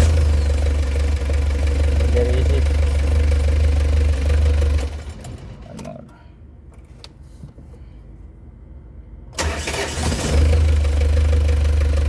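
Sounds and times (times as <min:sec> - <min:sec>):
diesel engine cranking and idling: 0:00.0 - 0:06.9, 0:09.3 - 0:12.0.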